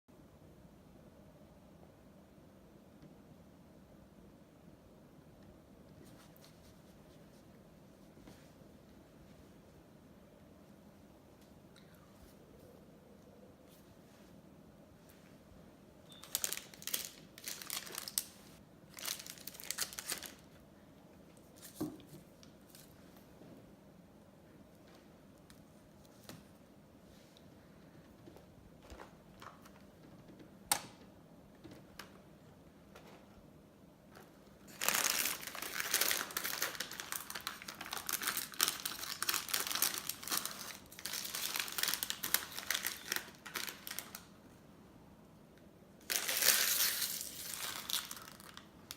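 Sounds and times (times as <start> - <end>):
packaging crinkling: 16.1 - 20.6, 34.2 - 44.3, 46.0 - 48.9.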